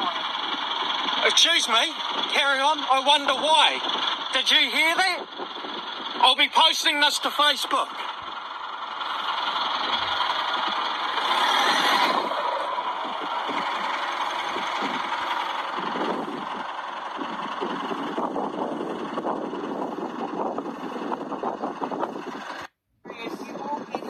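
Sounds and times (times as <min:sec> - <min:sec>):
car engine running through phone speaker: 0:00.0 - 0:24.0.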